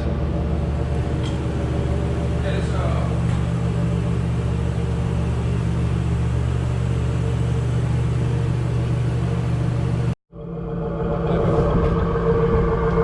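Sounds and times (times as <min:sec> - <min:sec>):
car engine idling: 0:00.2 - 0:10.2.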